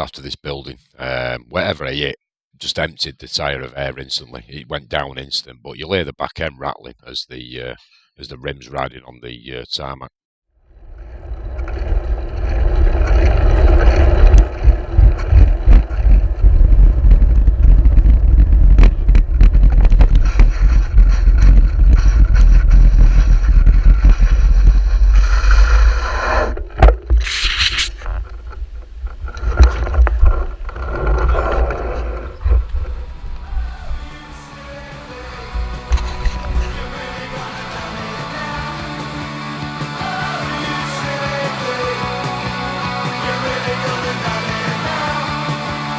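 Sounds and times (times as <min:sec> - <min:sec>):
wind rumbling on microphone: 0:10.7 - 0:34.4, 0:35.1 - 0:37.6
bicycle wheel rim scraping road: 0:10.8 - 0:34.5, 0:35.1 - 0:38.4
short hiss: 0:27.2 - 0:28.0.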